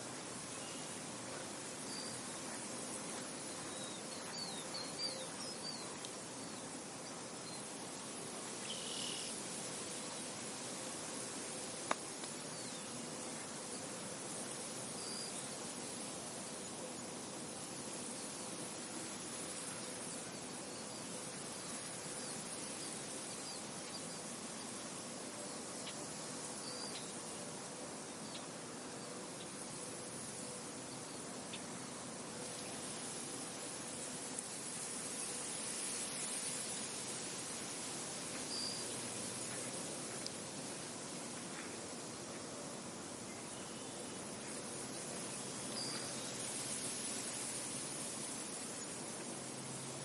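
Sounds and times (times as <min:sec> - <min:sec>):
wind blowing through field: 0:00.0 - 0:50.0
small birds chirping: 0:01.8 - 0:07.7.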